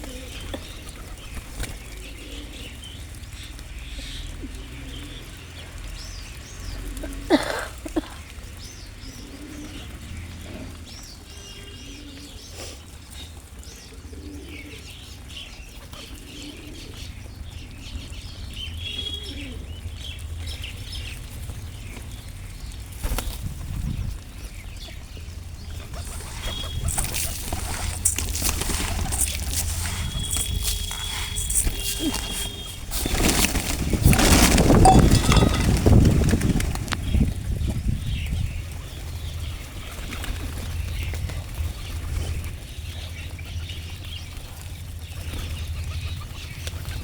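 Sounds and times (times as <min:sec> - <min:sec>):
birds chirping: 0:24.3 - 0:41.2
wings flapping: 0:25.6 - 0:37.2.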